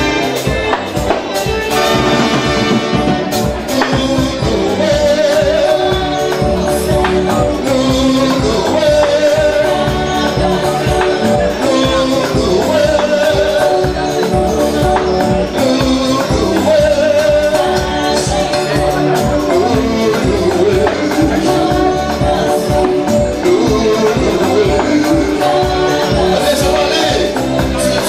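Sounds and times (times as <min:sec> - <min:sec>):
bass: 0:00.0 - 0:28.0
melodic lead line: 0:00.0 - 0:28.0
steady drum beat: 0:00.0 - 0:28.0.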